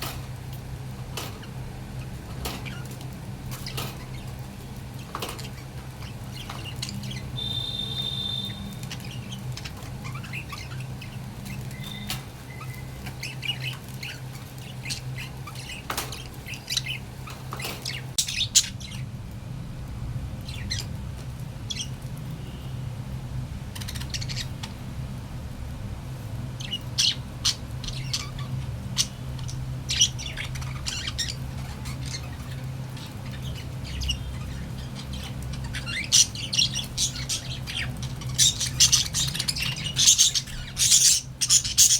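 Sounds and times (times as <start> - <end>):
steady low hum: 0.0 - 41.9
budgerigars chirping and squawking: 1.0 - 19.1, 20.4 - 21.0, 21.7 - 22.0, 23.7 - 24.8, 26.6 - 41.9.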